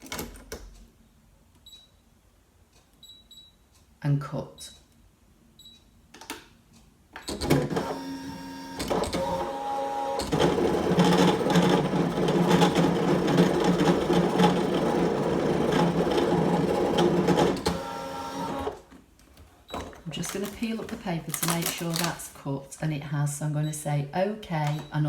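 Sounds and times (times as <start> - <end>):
cutting machine motors whirring: 7.6 - 18.8.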